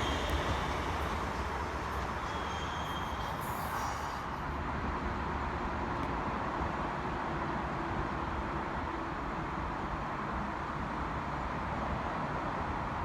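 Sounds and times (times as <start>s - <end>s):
faint high wheel squeals: 0.0s - 4.7s
train wheels rumbling on rail: 0.0s - 10.4s.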